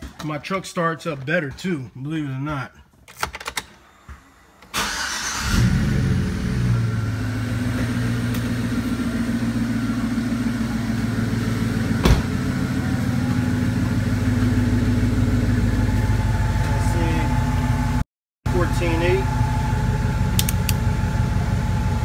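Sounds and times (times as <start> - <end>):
truck engine starting and idling: 4.6 - 22.0.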